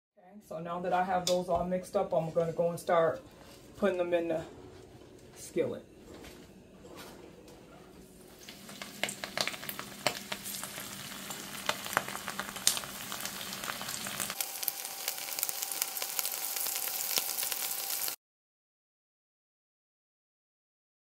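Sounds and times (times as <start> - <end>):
oil sizzling and popping: 8.3 - 18.2.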